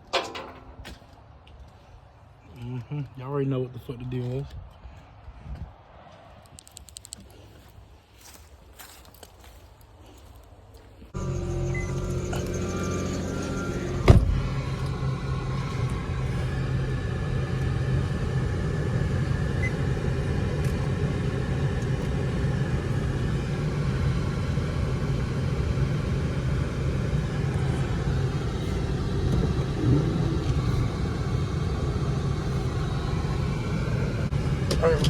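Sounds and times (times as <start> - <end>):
car engine idling: 11.2 - 35.0.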